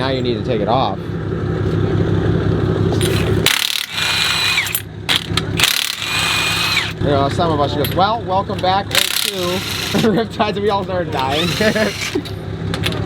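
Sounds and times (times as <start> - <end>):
low engine hum: 0.0 - 13.0
impact wrench hammering: 3.0 - 7.0, 8.6 - 10.1, 11.1 - 13.0.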